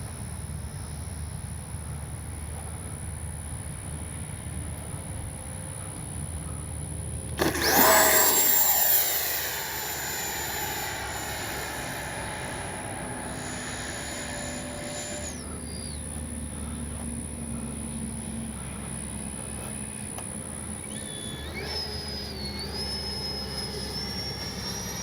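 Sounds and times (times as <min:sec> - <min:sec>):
model jet fan whine: 0:05.8 - 0:25.0.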